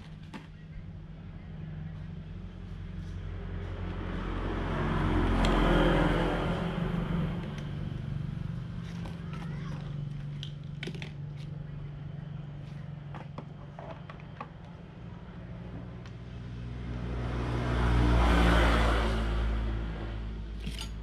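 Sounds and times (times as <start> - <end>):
low engine hum: 0.0 - 21.0
rushing engine sound passing: 2.3 - 8.9, 16.2 - 20.6.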